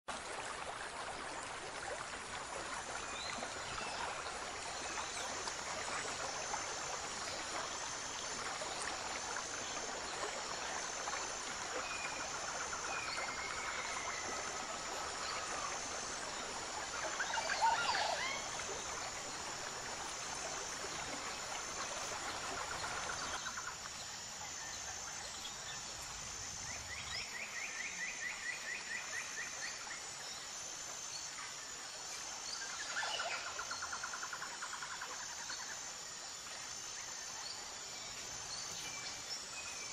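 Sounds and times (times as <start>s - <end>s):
wildlife chirps and calls: 11.9s - 19.0s.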